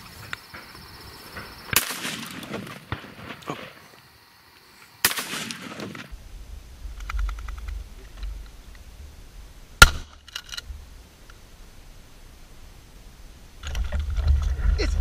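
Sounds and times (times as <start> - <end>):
shotgun shots: 1.4 - 3.8, 5.0 - 6.2, 9.8 - 10.2
low wind rumble: 5.6 - 15.0.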